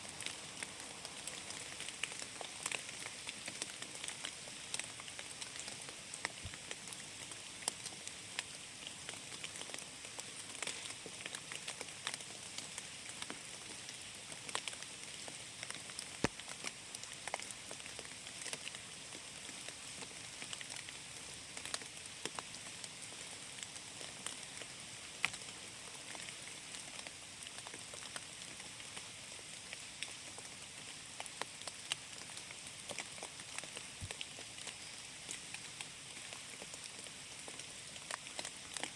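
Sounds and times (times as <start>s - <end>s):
raindrops pattering on leaves: 0.0s - 38.9s.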